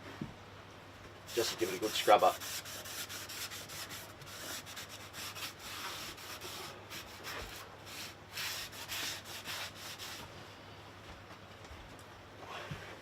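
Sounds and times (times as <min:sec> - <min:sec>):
hand scrubbing a door edge: 0:01.3 - 0:10.3.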